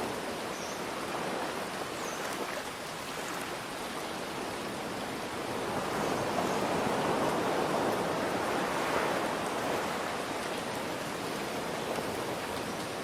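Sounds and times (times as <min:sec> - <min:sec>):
rain hiss: 0:00.0 - 0:13.0
ocean surf washing in: 0:04.4 - 0:13.0.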